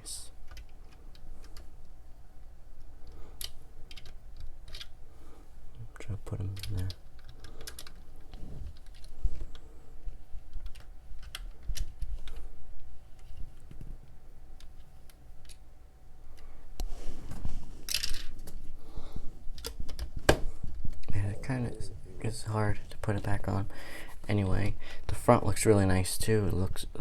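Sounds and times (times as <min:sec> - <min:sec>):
plastic bricks clicking and rattling: 0:17.9 - 0:18.3.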